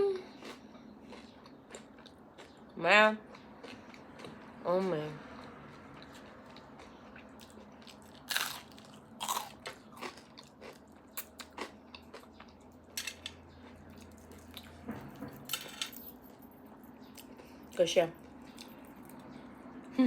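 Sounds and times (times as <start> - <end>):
crunchy bites and chewing: 0.3 - 4.6, 5.2 - 14.8.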